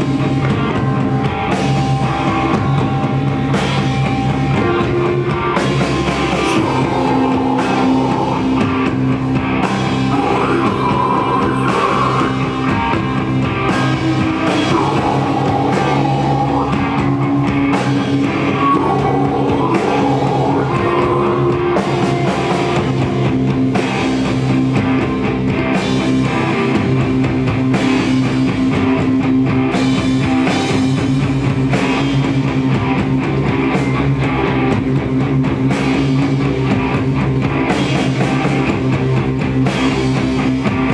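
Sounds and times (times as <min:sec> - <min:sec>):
drum kit: 0:00.0 - 0:40.9
electric guitars sustained chords: 0:00.0 - 0:40.9
wavering melodic lead guitar line: 0:00.0 - 0:40.9.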